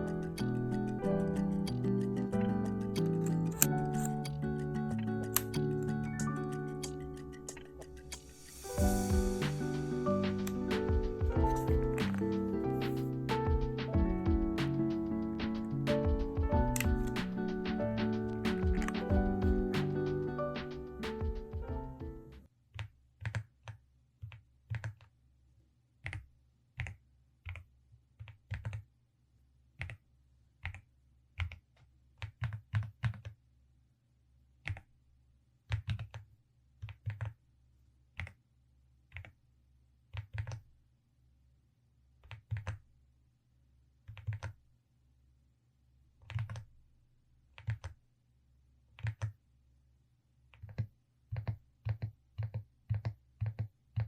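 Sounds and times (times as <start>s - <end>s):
mechanical keyboard typing: 0.0s - 8.3s, 10.2s - 21.7s, 26.8s - 28.9s, 36.8s - 37.4s, 42.3s - 42.8s, 44.1s - 44.6s, 46.3s - 46.7s, 47.6s - 48.0s, 49.0s - 49.4s.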